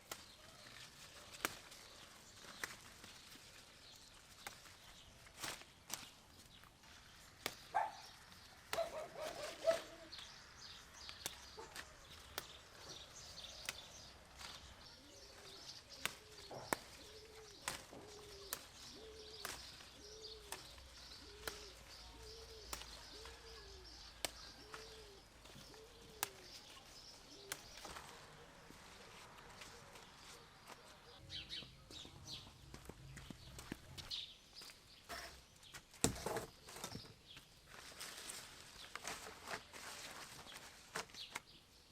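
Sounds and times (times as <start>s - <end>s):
small birds chirping: 0.0s - 41.9s
low arched bird calls: 7.7s - 28.6s.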